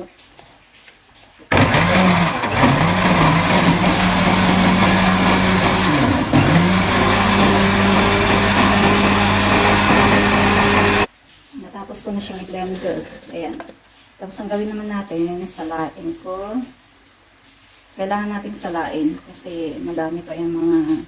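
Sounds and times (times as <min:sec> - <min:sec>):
electric blender motor running: 0:01.5 - 0:11.1.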